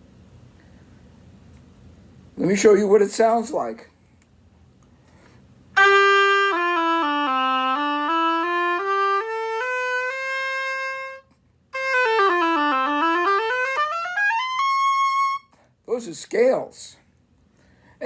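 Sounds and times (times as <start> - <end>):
oboe playing scales: 5.8 - 15.6.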